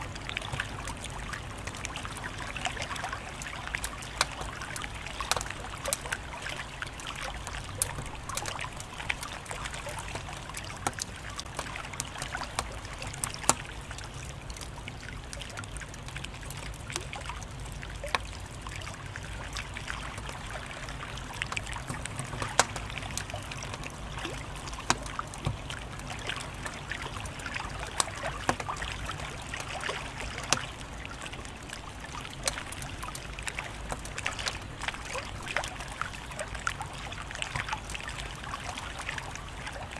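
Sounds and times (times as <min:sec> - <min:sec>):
fire crackling and popping: 0:00.2 - 0:18.5, 0:21.0 - 0:36.0.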